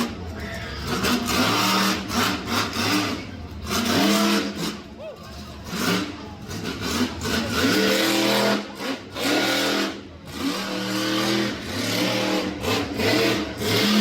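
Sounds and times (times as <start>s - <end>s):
monster truck engine revving: 0.0s - 14.0s.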